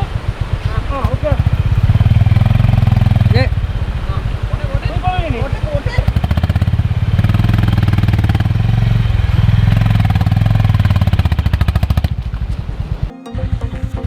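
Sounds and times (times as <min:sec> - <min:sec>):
single-cylinder motorcycle engine running: 0:00.0 - 0:13.1.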